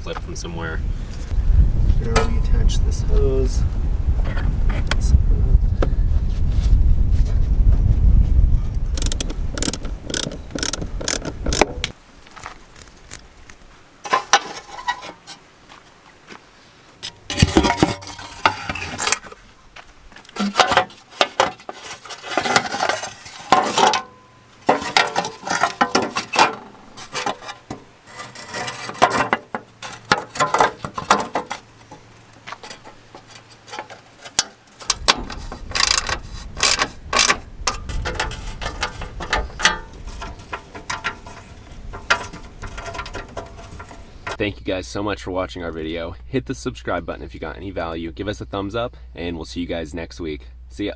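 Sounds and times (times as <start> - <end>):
socket ratchet clicking: 9.0 - 11.7
plastic and metal parts knocking: 9.0 - 11.9, 32.5 - 44.4.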